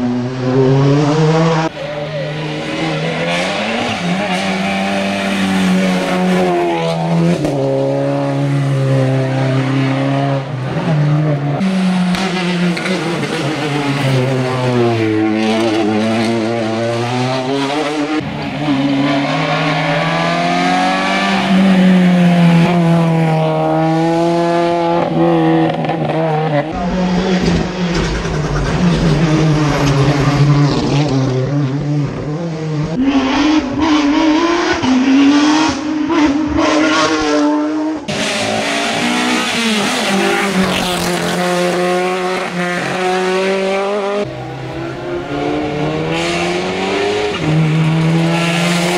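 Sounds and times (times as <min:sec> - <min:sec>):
race car engines at high revs: 0:00.0 - 0:48.9.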